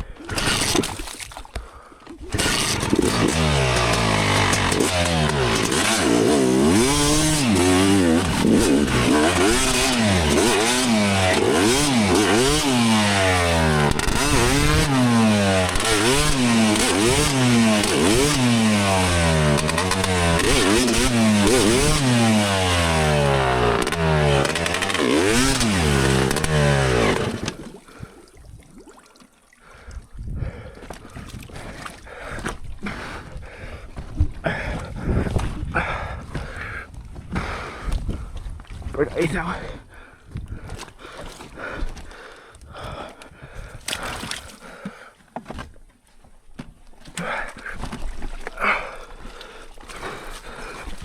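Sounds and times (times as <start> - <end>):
dirt bike engine revving: 0.3 - 0.9, 2.3 - 27.7.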